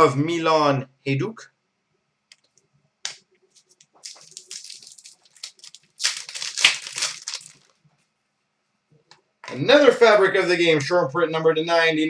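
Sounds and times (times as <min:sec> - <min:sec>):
trading cards crinkling: 0:03.5 - 0:07.8.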